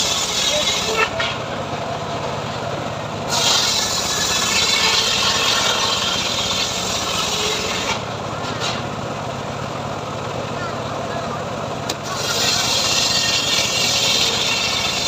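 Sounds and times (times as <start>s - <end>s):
saw blade cutting through log: 0.0s - 1.5s, 3.3s - 8.9s, 11.9s - 15.0s
sawmill engine running: 0.0s - 15.0s.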